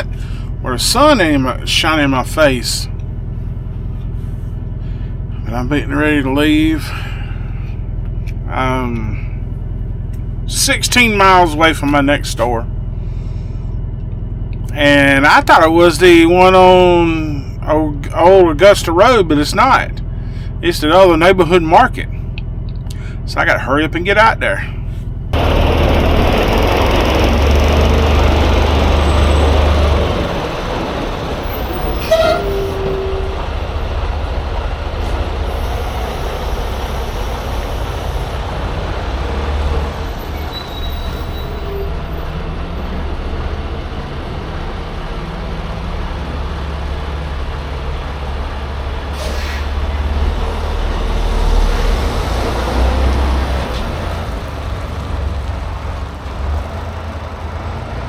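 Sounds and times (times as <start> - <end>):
diesel truck engine rumble: 0.0 - 58.0
falling squeal: 28.6 - 30.4, 31.3 - 33.6, 35.1 - 38.3, 40.1 - 42.4.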